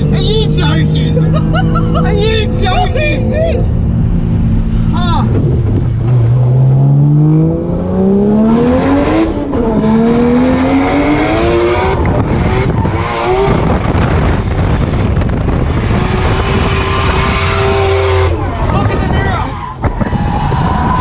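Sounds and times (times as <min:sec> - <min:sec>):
car engine revving hard: 0:06.0 - 0:18.5.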